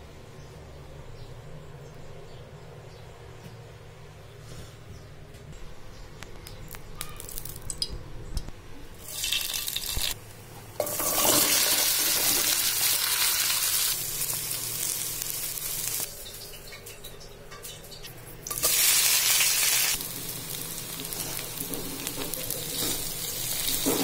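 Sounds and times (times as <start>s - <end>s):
okra sizzling in hot oil: 9.0s - 10.2s, 10.8s - 16.8s, 18.4s - 24.0s.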